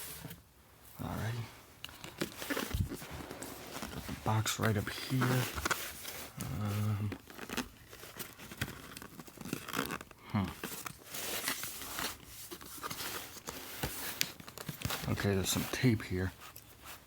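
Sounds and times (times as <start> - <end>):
cardboard box being handled: 2.1 - 15.7.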